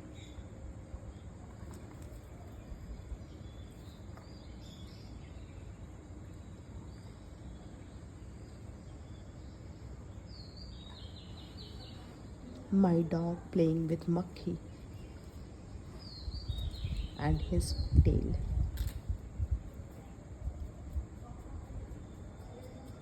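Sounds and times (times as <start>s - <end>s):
low background noise: 0.0s - 23.0s
faint bird chirps: 14.0s - 18.4s, 21.7s - 23.0s.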